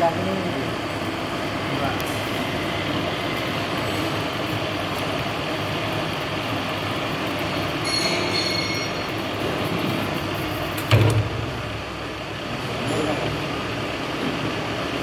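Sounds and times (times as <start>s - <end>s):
metal lathe running: 0.0s - 15.0s
high squeal: 7.8s - 9.2s
loud clunk: 10.8s - 12.1s.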